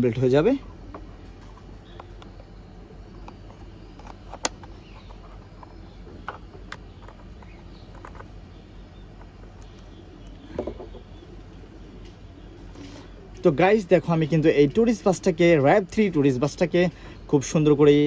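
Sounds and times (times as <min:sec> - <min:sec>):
steady low hum: 0:00.0 - 0:18.0
plastic toy parts clicking: 0:03.2 - 0:08.4.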